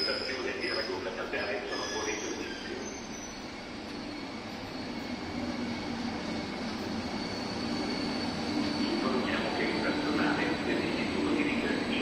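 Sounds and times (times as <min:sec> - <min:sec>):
brake squeal: 0:00.0 - 0:05.1
train wheels rumbling on rails: 0:00.0 - 0:12.0.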